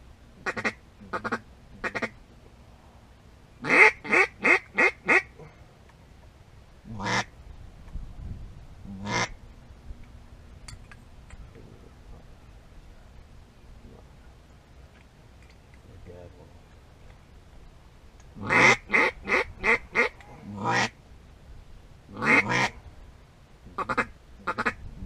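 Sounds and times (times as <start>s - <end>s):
duck quacking: 0.4s - 2.2s, 3.6s - 5.3s, 6.9s - 7.3s, 9.0s - 9.3s, 18.4s - 20.9s, 22.1s - 22.8s, 23.8s - 24.8s.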